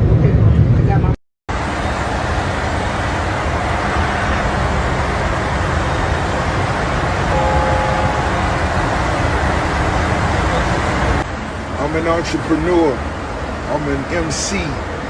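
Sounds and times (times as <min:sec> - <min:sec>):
loud rushing noise: 0:00.0 - 0:15.0
faint high tone: 0:07.3 - 0:08.5.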